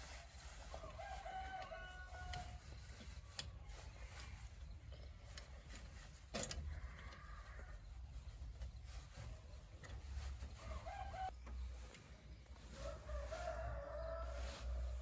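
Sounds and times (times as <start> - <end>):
rooster crowing: 0.8 - 2.6, 10.6 - 11.4, 12.8 - 15.0.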